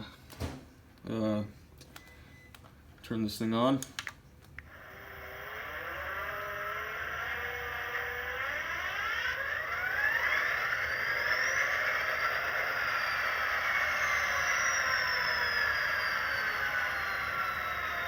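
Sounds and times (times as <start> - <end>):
model diesel engine start-up sound: 4.7 - 18.0.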